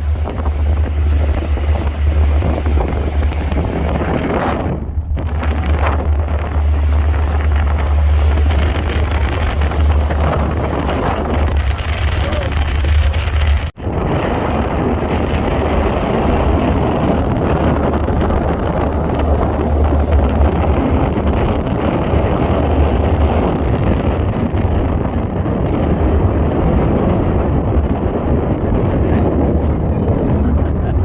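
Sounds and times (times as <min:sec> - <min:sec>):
rushing water: 0:00.0 - 0:24.8
boat engine rumble: 0:00.0 - 0:31.0
wind buffeting microphone: 0:00.0 - 0:31.0.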